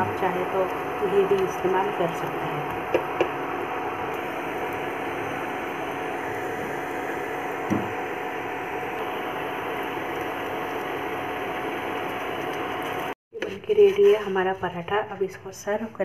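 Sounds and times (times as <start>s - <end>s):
wooden spatula knocking on pan: 7.7s - 7.9s.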